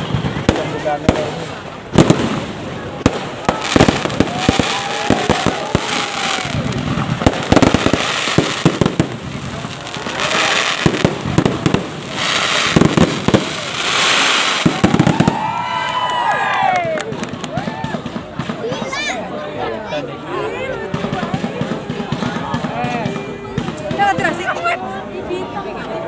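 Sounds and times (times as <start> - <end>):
fireworks hiss: 0.0 - 15.5
fireworks bangs and crackling: 0.0 - 19.4, 20.5 - 25.0.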